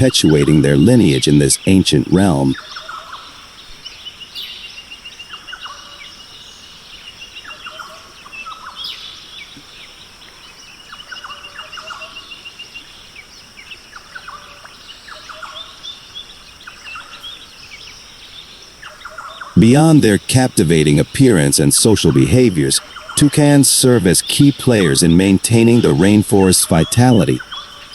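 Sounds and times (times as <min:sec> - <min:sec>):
birds calling: 0:00.0 - 0:27.9
high insect drone: 0:00.4 - 0:27.9
rapid bird trill: 0:10.8 - 0:27.9.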